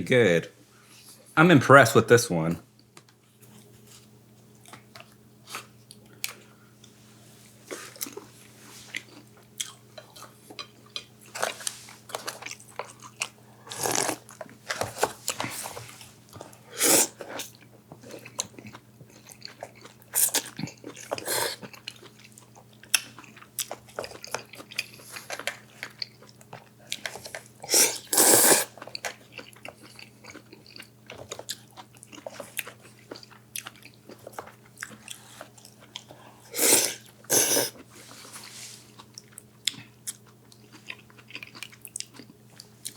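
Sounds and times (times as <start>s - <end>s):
crunchy chewing and biting: 8.9s - 38.0s, 38.9s - 42.9s.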